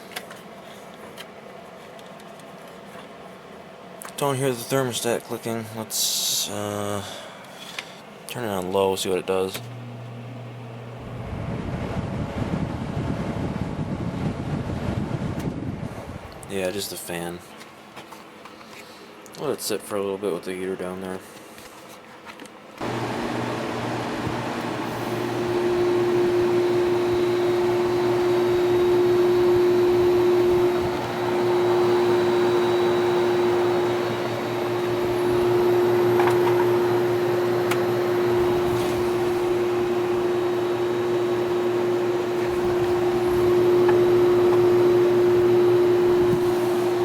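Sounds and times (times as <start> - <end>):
air conditioner fan blowing: 0.0 - 47.0
compressor tone: 22.8 - 47.0.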